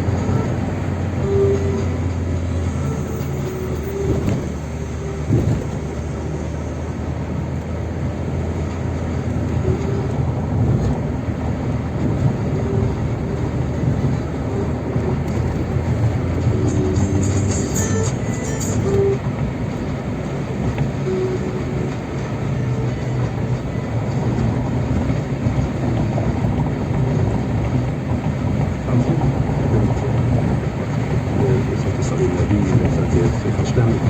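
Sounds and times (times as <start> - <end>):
tyre noise on road: 0.0 - 34.0
vehicle engine rumble: 0.0 - 34.0.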